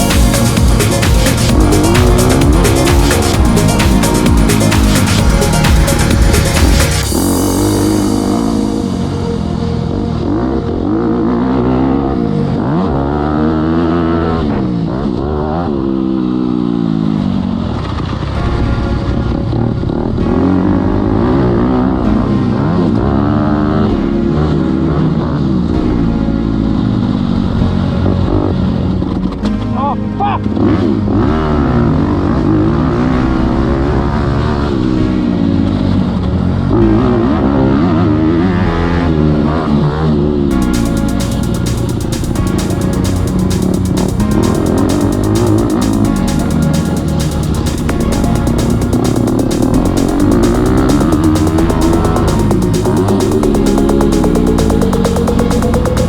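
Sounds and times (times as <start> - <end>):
motocross bike engine revving: 0.0 - 9.1, 30.6 - 56.0.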